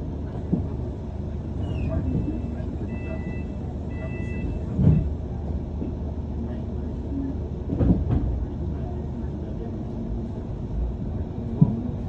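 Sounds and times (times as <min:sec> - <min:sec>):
bus engine and road rumble: 0:00.0 - 0:12.0
brief squeal: 0:01.6 - 0:05.0.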